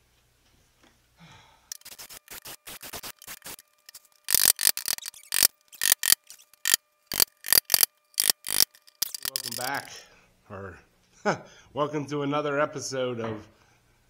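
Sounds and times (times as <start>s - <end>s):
rapid mechanical clicking: 1.7s - 9.9s.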